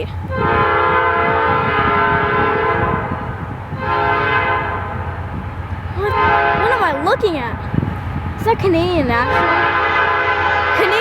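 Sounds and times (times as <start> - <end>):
train rumbling: 0.0 - 11.0
locomotive air horn blasts: 0.2 - 5.4, 6.0 - 7.3, 9.3 - 11.0.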